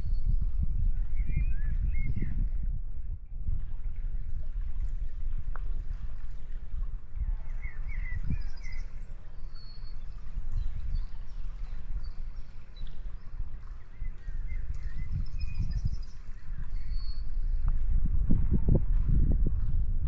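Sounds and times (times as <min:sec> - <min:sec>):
wind rumble on microphone: 0:00.0 - 0:20.0
birds chirping: 0:03.6 - 0:18.0.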